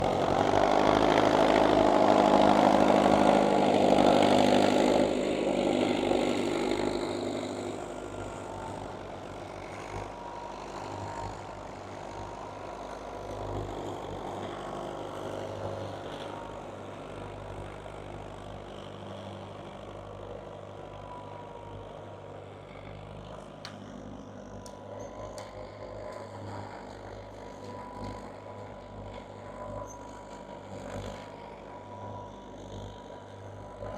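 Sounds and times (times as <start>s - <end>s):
tractor diesel engines running: 0.0s - 24.7s.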